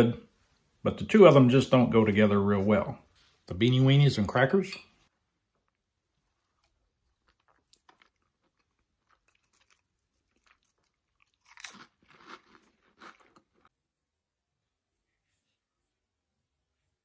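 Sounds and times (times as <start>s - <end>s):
person chewing: 5.5s - 13.7s
crisp cracker crunches: 6.3s - 13.7s.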